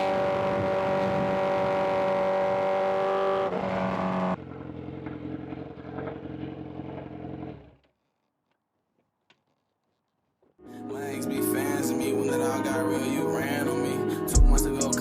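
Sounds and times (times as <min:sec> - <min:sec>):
wind rush: 0:00.0 - 0:02.5
motorcycle engine at high revs: 0:00.0 - 0:07.9.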